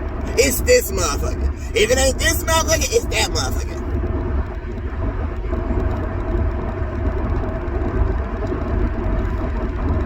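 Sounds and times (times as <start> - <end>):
car engine rumble: 0.0 - 10.0
faint steady hum: 0.0 - 10.0
road noise: 0.0 - 10.0.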